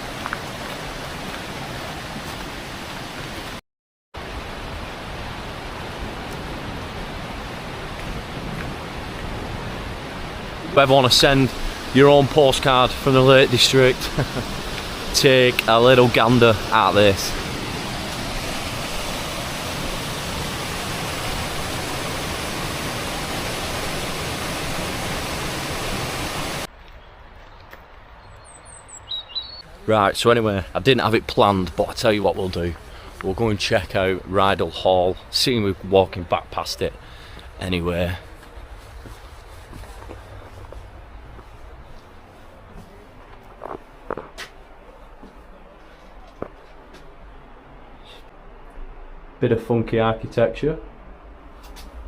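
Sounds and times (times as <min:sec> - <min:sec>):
waterfall rushing: 0:00.0 - 0:03.6, 0:04.2 - 0:26.7.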